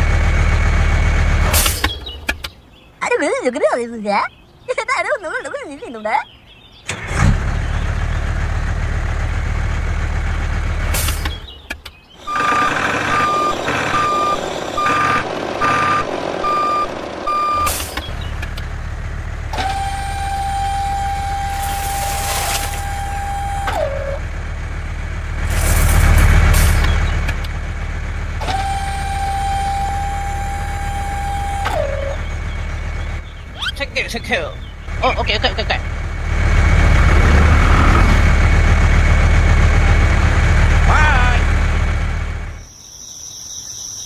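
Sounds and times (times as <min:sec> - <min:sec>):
vehicle engine rumble: 0:00.0 - 0:42.8
reversing beeper beeps: 0:12.2 - 0:18.1, 0:19.6 - 0:24.2.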